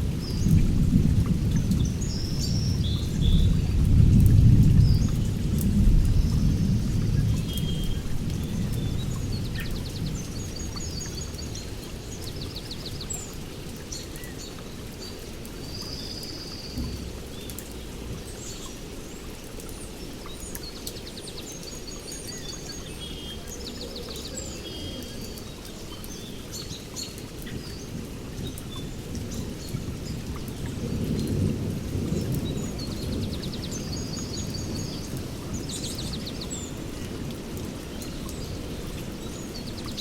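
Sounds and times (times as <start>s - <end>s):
low thunder rumble: 0.0s - 11.8s, 27.8s - 37.8s
steady rain falling: 0.0s - 40.0s
small birds chirping and trilling: 0.2s - 40.0s.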